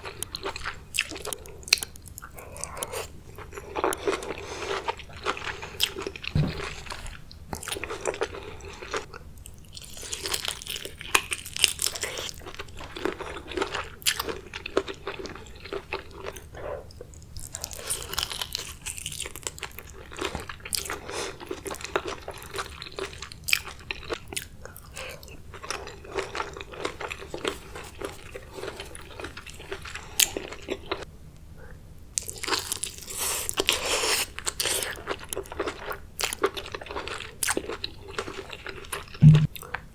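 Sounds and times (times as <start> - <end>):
crab shell cracking: 0.0 - 4.1
wet biting and chewing: 0.0 - 15.0.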